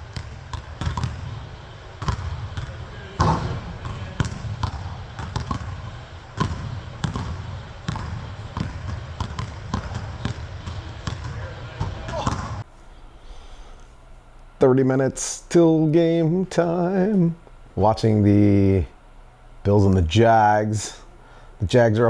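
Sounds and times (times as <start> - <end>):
basketball bouncing on a court: 0.0 - 12.7.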